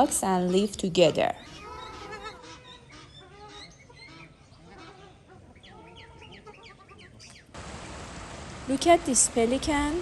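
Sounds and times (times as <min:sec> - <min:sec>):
water birds calling: 0:01.4 - 0:10.0.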